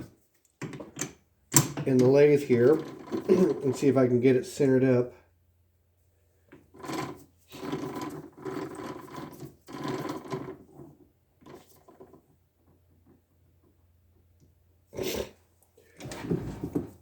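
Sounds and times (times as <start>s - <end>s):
metal rattling and clicking: 0.6s - 3.8s.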